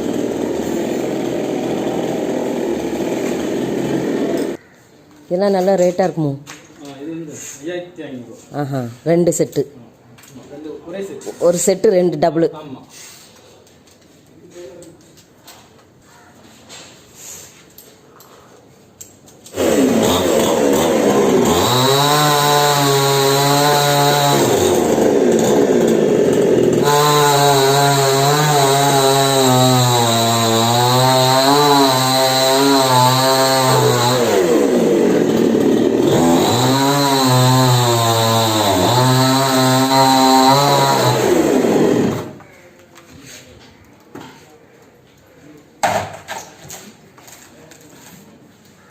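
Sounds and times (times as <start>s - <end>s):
chainsaw running: 0.0s - 4.6s, 19.4s - 42.4s.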